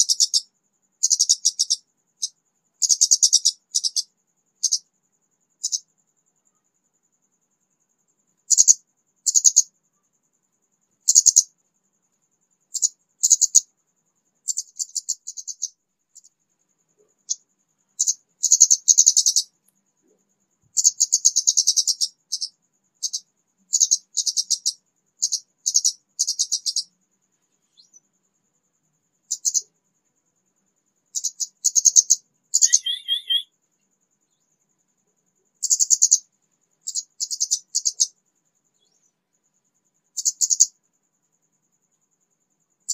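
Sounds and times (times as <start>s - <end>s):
lower warbled bird call: 31.9s - 33.5s
songbird scratchy chatter: 32.6s - 33.5s.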